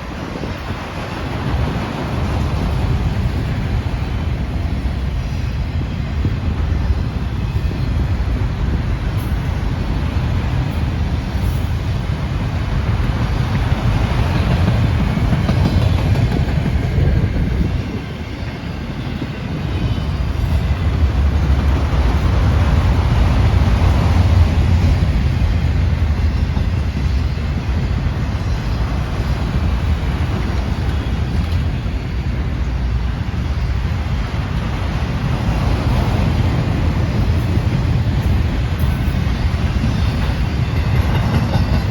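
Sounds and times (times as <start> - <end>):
train rumbling on tracks: 0.0 - 41.9.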